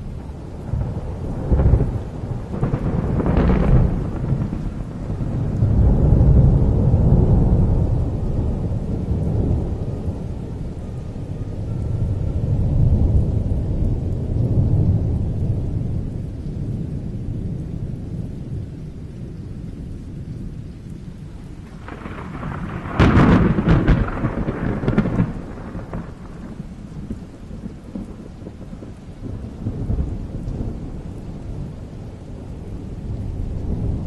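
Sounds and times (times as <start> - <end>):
thunder rumbling: 0.0 - 34.0
thunder crack: 0.7 - 8.0, 21.7 - 30.0.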